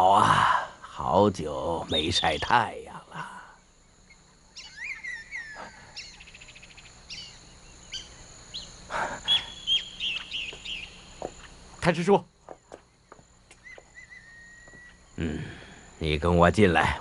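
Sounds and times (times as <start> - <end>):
birds chirping: 0.0 - 17.0
steady high-pitched hum: 0.0 - 17.0.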